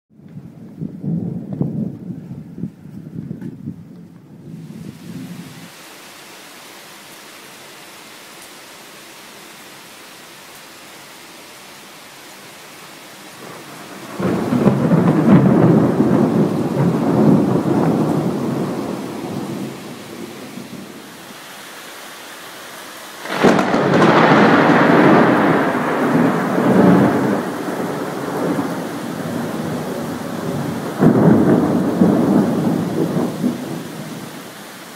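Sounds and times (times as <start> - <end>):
steady rain: 0.2 - 34.9
rolls of thunder: 13.4 - 20.8, 23.3 - 34.2
thunder crack: 13.4 - 20.8, 23.2 - 34.2.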